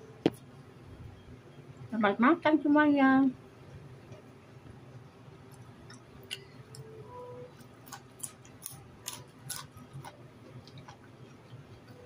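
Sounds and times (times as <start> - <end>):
chewing raw vegetables: 7.6 - 11.5.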